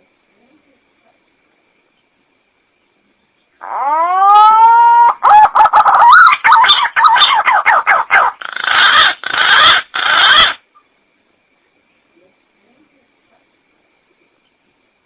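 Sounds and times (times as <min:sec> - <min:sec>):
pigeon warbling call: 0:03.6 - 0:10.6.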